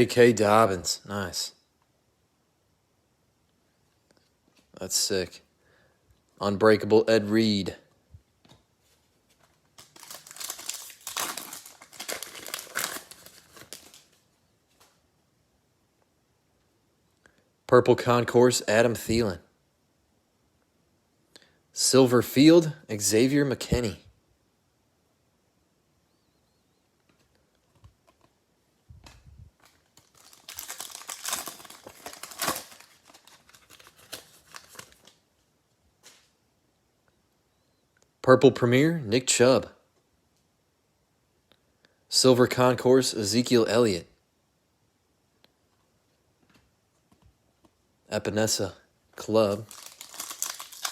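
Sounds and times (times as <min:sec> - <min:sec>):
wrapper crinkling: 0:09.7 - 0:14.2, 0:29.6 - 0:35.2, 0:49.2 - 0:50.9.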